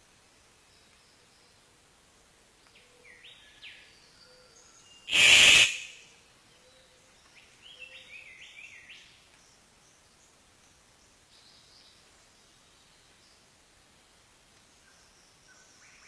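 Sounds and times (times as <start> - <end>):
loud brief noise burst: 5.1 - 6.0.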